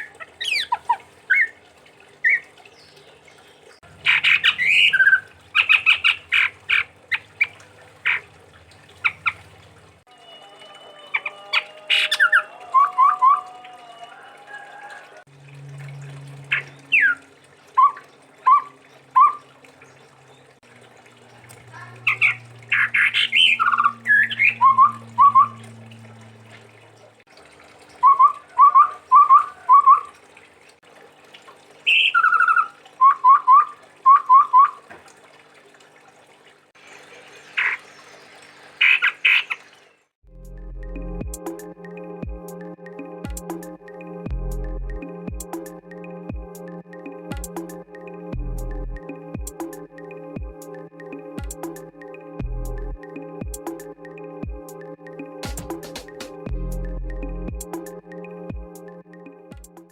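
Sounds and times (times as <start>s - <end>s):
bird singing whistled notes: 22.1s - 25.6s.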